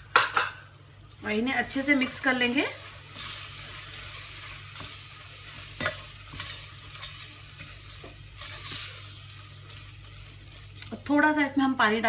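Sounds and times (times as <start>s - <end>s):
masala sizzling in oil: 0.0s - 12.0s
spatula scraping: 2.8s - 11.0s.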